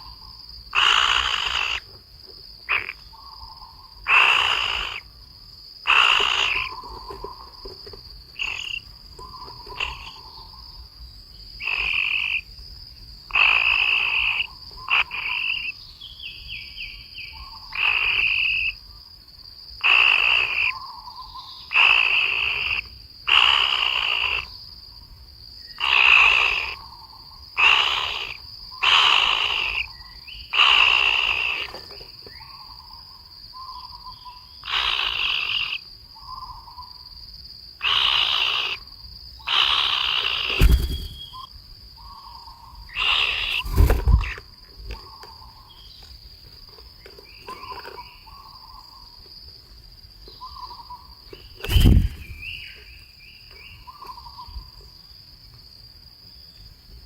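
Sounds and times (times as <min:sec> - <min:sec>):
loud animal calls: 0:00.7 - 0:01.8, 0:04.1 - 0:05.0, 0:05.9 - 0:07.2, 0:08.4 - 0:10.5, 0:27.6 - 0:29.9, 0:34.6 - 0:35.8, 0:37.8 - 0:38.8, 0:39.5 - 0:41.5, 0:42.2 - 0:44.4.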